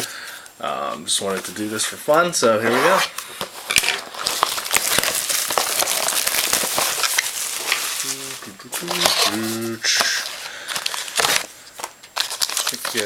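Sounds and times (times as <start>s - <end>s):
plastic shrink-wrap crinkling: 2.8s - 13.0s.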